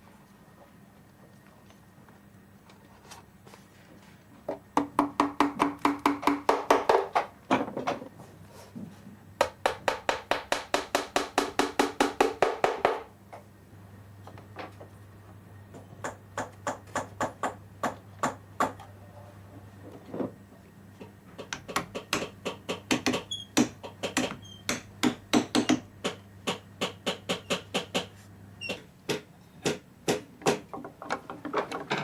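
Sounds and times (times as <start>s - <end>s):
hammer tapping: 21.4s - 28.1s, 29.1s - 30.7s.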